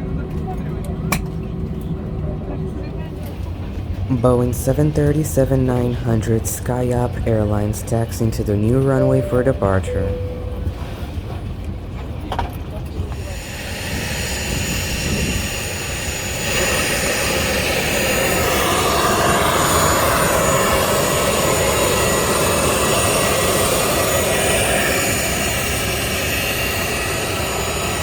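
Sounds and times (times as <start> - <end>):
jet engines taxiing: 0.0 - 28.0.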